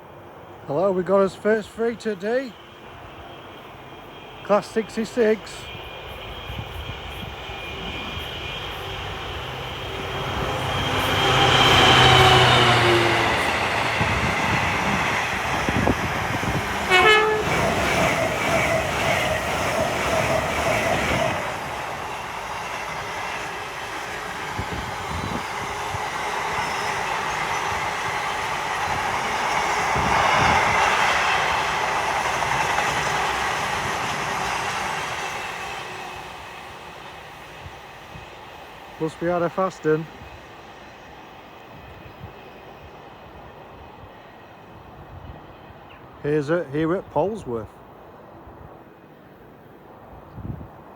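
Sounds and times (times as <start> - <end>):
diesel locomotive passing: 0.0 - 50.9.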